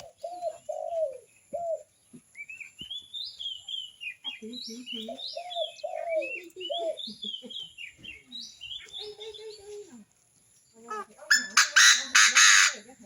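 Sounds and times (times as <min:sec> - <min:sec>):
mellow bird calls: 0:00.0 - 0:13.0
loud harsh bird call: 0:11.3 - 0:12.9.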